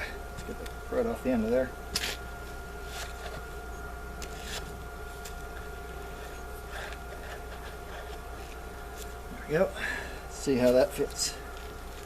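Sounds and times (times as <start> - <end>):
steady hum: 0.0 - 12.0
faint scrapes and rustles: 2.8 - 3.5, 4.2 - 5.4.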